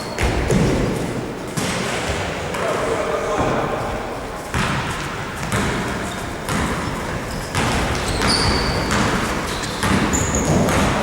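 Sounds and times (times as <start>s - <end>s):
basketball bouncing on court: 0.0s - 1.0s, 4.5s - 11.0s
sneakers squeaking on floor: 0.0s - 11.0s.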